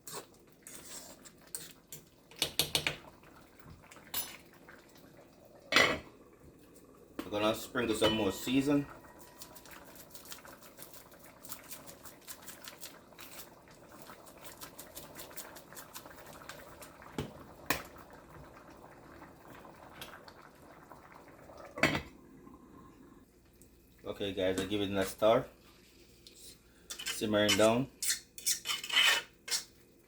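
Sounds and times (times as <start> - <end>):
pot bubbling and crackling: 0.0 - 30.0
utensil clinking on pot: 7.9 - 8.6.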